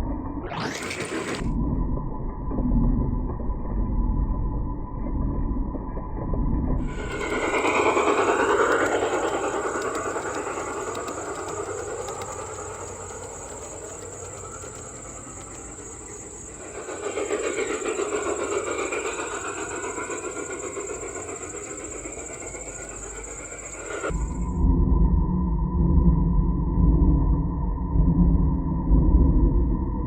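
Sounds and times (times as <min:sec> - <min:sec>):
model train running on track: 0:00.5 - 0:01.5, 0:06.8 - 0:24.5.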